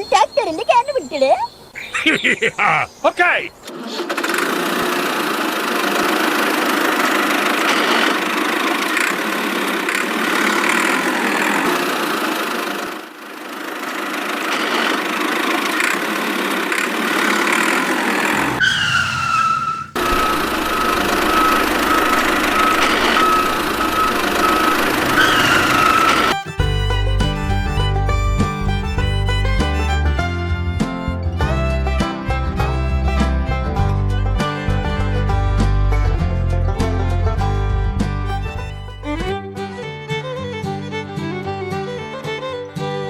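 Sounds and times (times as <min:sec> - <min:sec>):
steady high whine: 0:19.4 - 0:26.5
motor running: 0:20.0 - 0:30.0.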